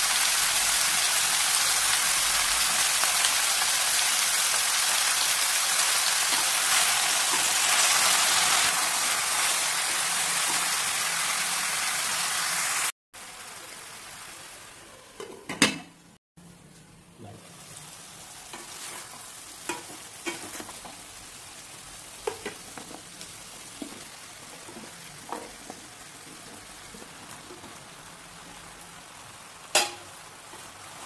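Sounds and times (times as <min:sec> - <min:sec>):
vegetables sizzling in oil: 0:00.0 - 0:15.4, 0:17.4 - 0:31.0.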